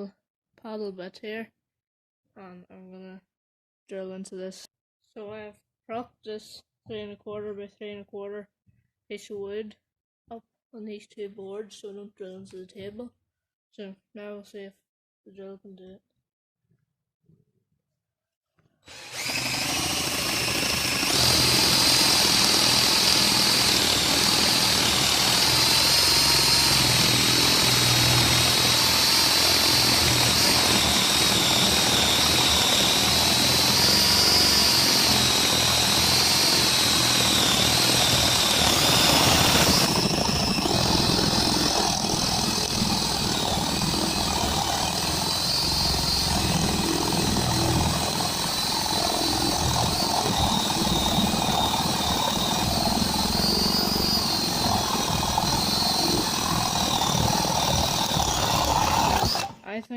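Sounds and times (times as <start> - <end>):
cordless drill boring into wood: 18.8 - 59.6.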